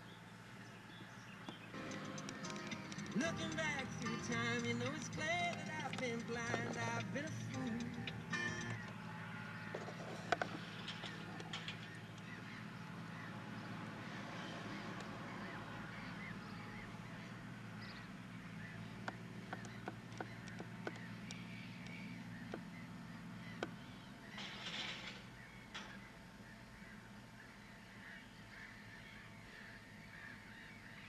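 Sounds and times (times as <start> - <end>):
car engine idling: 0.0 - 24.4
sharp clicks: 1.8 - 9.0, 19.0 - 22.7.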